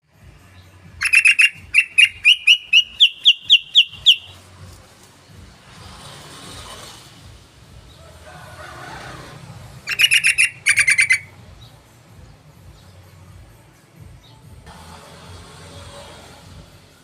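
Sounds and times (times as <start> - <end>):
bird calling sharp notes: 1.0 - 4.4, 9.8 - 11.4.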